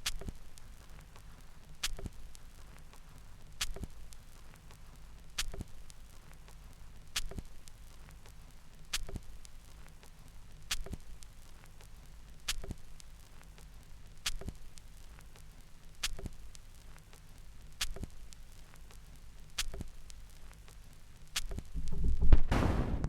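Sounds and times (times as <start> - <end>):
record surface hiss: 0.0 - 23.0
record stylus clicks: 10.7 - 11.0, 19.6 - 19.9.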